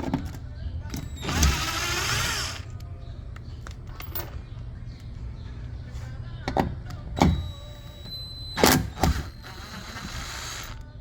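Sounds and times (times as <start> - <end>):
faint steady whir: 0.1 - 11.0.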